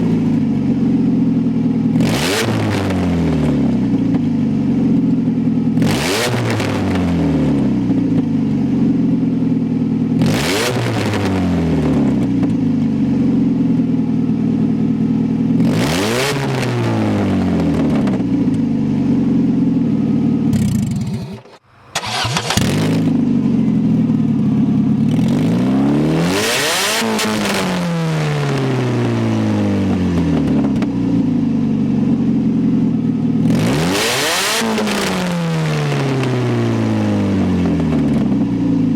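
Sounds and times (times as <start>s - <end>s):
car engine revving: 20.3s - 30.8s, 33.4s - 37.8s.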